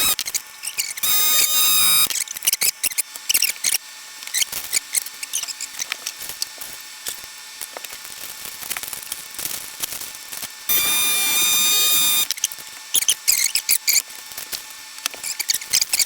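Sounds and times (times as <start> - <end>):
vacuum pump whine: 0.0 - 0.2, 1.0 - 2.1, 10.7 - 12.3.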